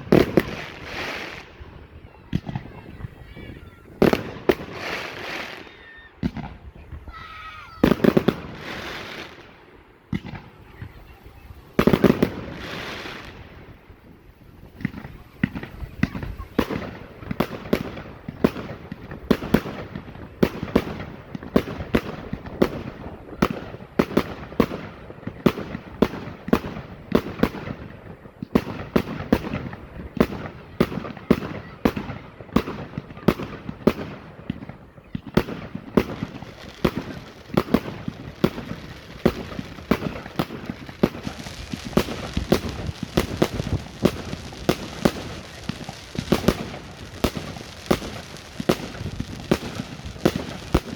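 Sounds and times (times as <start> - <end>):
fireworks hiss: 0.0 - 7.0, 7.8 - 27.9, 28.5 - 50.9
fireworks bangs: 0.0 - 50.9.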